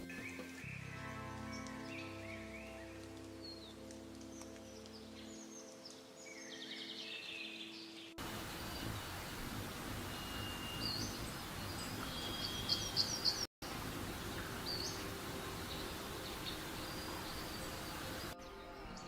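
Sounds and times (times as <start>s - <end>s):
birds chirping and whistling: 6.2s - 13.5s
insects and forest hiss: 8.2s - 18.4s.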